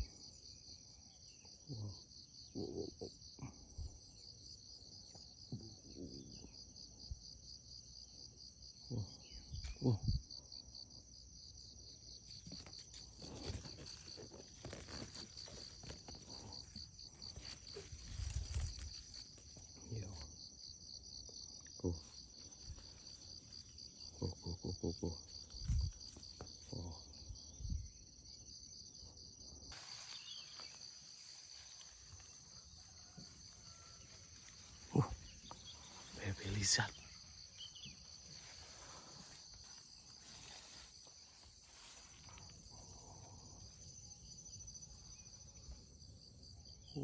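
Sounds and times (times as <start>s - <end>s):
crickets trilling: 0.0s - 47.0s
insect chirping: 0.0s - 47.0s
rustling in vegetation: 12.0s - 20.8s, 22.1s - 24.2s, 25.2s - 27.8s, 29.4s - 43.9s.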